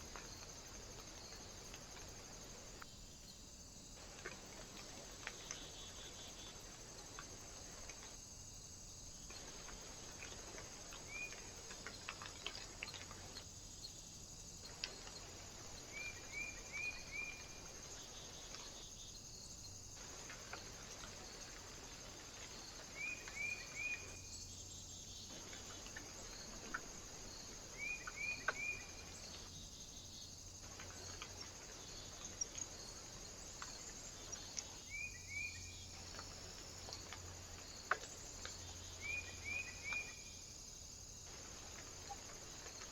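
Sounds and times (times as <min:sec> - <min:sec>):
steady high hiss: 0:00.0 - 0:42.9
small bird chirping: 0:27.7 - 0:30.3, 0:38.4 - 0:40.4.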